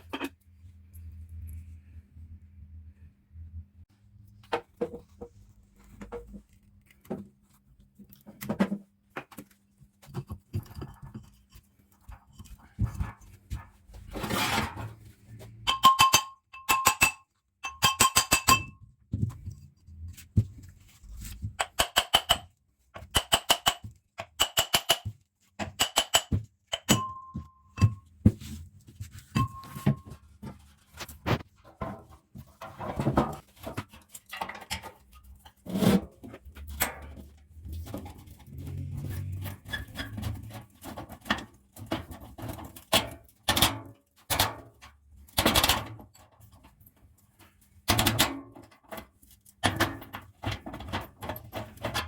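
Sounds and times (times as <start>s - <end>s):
hammer striking ringing metal: 15.7s - 18.8s.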